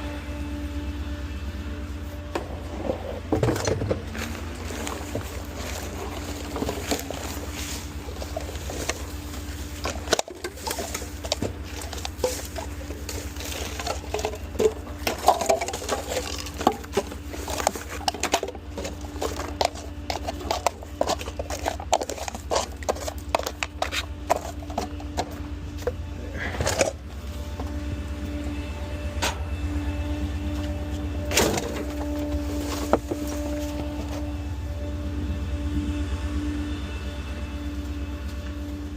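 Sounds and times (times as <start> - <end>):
garbage truck engine running: 0.0 - 38.9
trash clicking and rustling: 2.3 - 27.8, 30.4 - 34.4.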